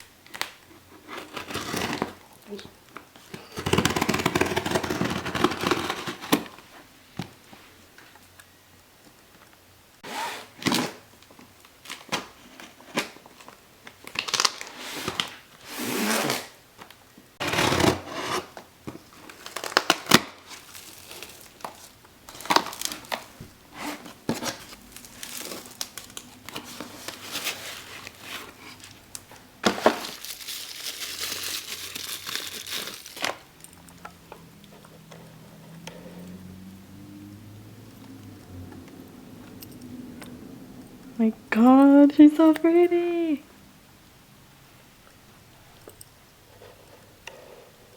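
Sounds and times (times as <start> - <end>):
packaging tearing and crinkling: 0.2 - 2.4, 3.3 - 6.6, 11.7 - 15.4, 17.4 - 33.8
packaging rustling: 0.2 - 6.7, 10.4 - 16.6, 17.4 - 35.1.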